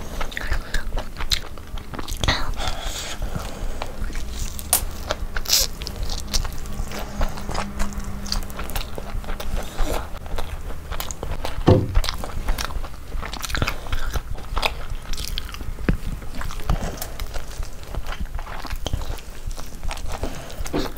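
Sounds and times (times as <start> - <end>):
chewing roast chicken: 0.0 - 20.9
low thud: 11.6 - 12.2.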